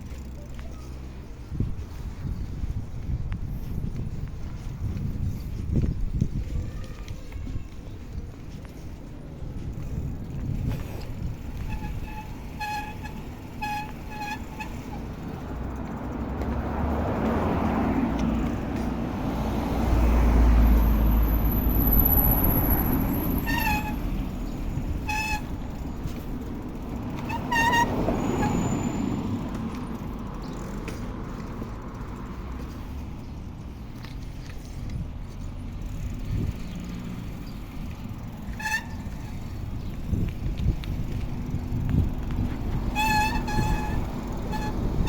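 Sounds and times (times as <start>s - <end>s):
road traffic passing: 0.0s - 45.0s
vehicle passing loudly: 15.2s - 24.4s.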